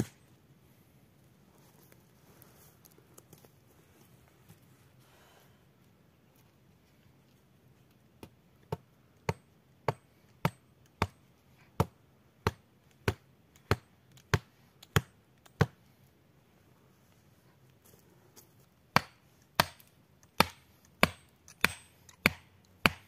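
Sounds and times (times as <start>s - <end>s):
blade chopping into wood: 19.0s - 23.0s.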